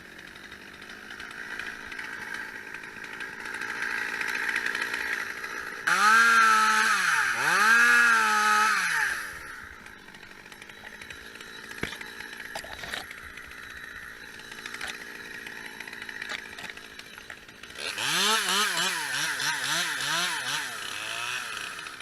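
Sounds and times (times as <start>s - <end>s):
chainsaw revving: 0.0s - 22.0s
engine idling: 9.1s - 22.0s.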